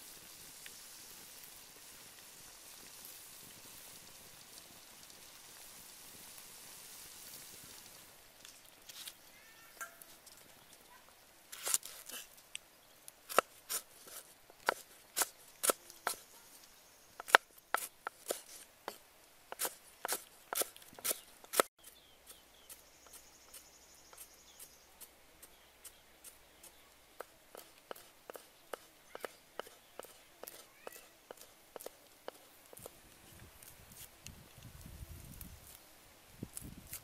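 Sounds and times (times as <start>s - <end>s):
cleaver chopping on wooden block: 14.6s - 16.2s, 17.2s - 21.7s.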